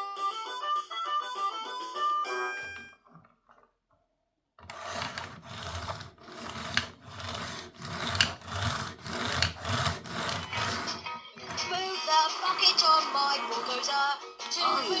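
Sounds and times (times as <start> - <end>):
plastic toy cars scraping: 4.6 - 15.0.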